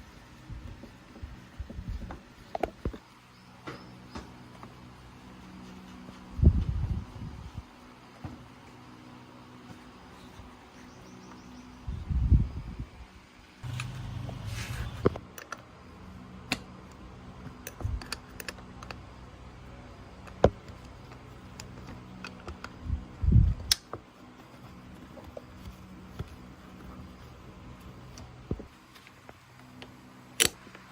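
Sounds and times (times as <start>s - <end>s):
low hum: 13.6s - 15.2s.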